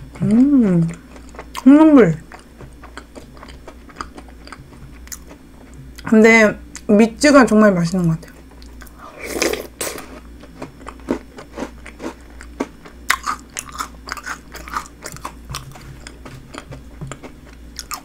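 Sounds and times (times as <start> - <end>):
person chewing crunchy snack: 2.2 - 6.1, 8.3 - 18.0.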